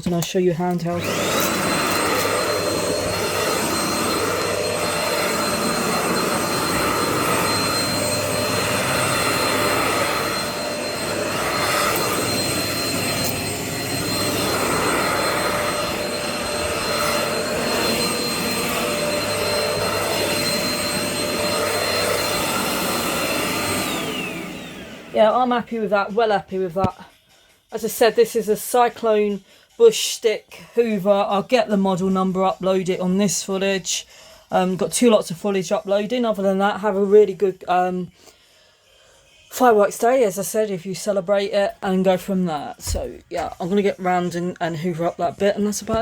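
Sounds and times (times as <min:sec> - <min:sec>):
stick vacuum cleaner running: 0:00.0 - 0:26.1, 0:42.4 - 0:46.0.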